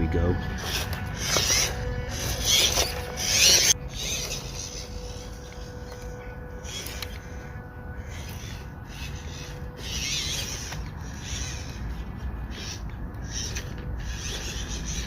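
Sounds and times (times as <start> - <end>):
rc truck motor whirring: 0.0 - 15.0
tyres scraping on stone: 0.5 - 7.4.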